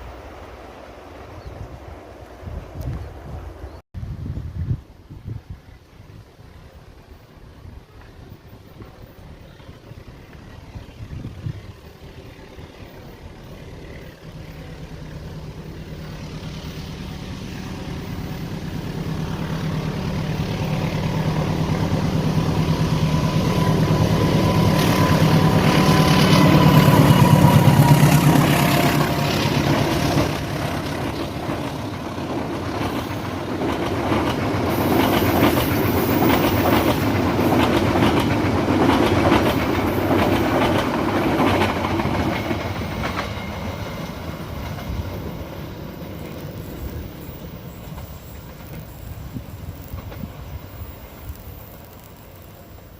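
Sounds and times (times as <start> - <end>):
locomotive engine drone: 6.2 - 52.9
train wheels clickety-clack: 18.0 - 52.9.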